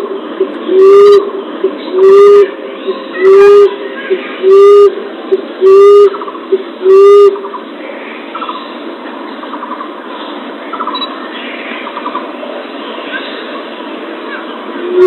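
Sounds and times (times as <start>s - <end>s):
faint short trills: 1.9s - 6.2s.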